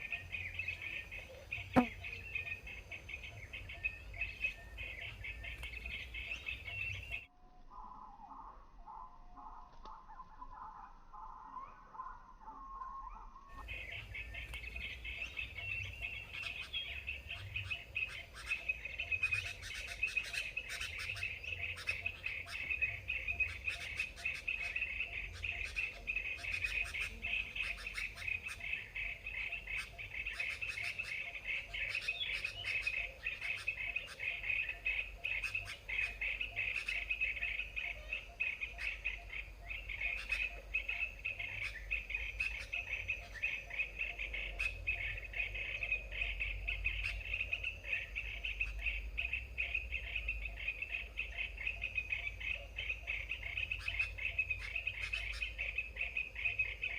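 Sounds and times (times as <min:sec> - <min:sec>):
birds chirping sharp calls: 0:13.6 - 0:56.9.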